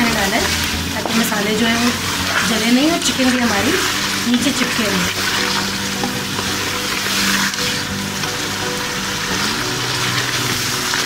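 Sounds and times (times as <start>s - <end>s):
chicken sizzling in hot oil: 0.0s - 11.0s
spatula stirring in pot: 0.0s - 11.0s.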